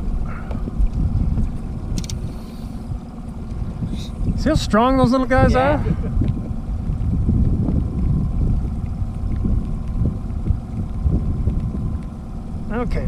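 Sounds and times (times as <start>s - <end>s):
outboard motor running: 0.0s - 13.0s
wind buffeting microphone: 0.0s - 13.0s.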